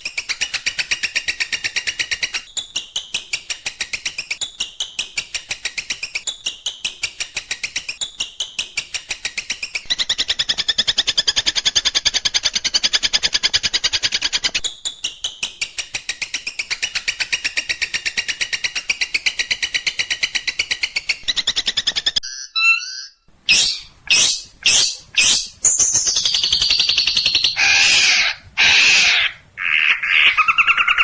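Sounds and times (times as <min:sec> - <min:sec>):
shrike singing sharp chatter: 0:23.5 - 0:29.4.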